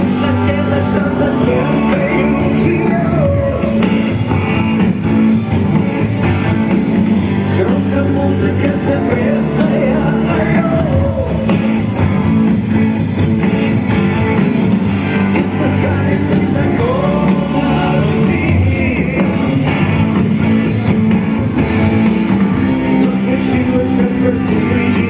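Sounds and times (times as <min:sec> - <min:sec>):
person singing: 0:00.0 - 0:04.3, 0:07.0 - 0:12.0, 0:15.2 - 0:21.1, 0:22.6 - 0:25.0
electric guitar: 0:00.0 - 0:25.0
rock band playing live: 0:00.0 - 0:25.0.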